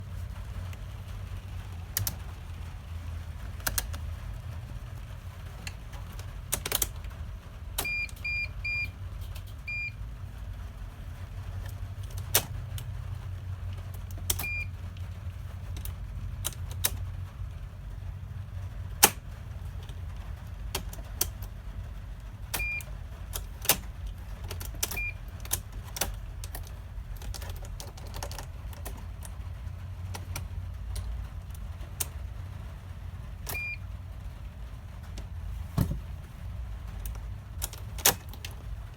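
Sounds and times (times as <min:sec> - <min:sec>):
sharp clicks: 0:03.5 - 0:04.1, 0:14.0 - 0:14.6, 0:19.0 - 0:20.0, 0:22.5 - 0:29.4.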